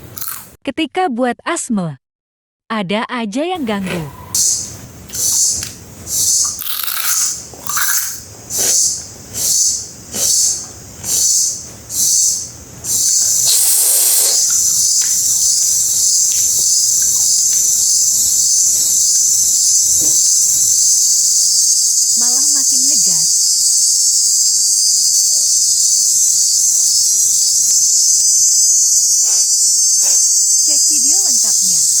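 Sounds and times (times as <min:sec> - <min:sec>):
high-pitched insect-like hiss: 0:03.6 - 0:32.0
wavering voice-like call: 0:12.9 - 0:21.2, 0:24.6 - 0:32.0.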